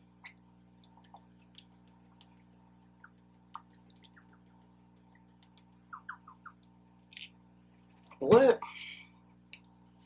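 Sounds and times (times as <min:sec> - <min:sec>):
wet mouth clicks: 0:00.2 - 0:07.3
quiet chewing: 0:00.2 - 0:07.4.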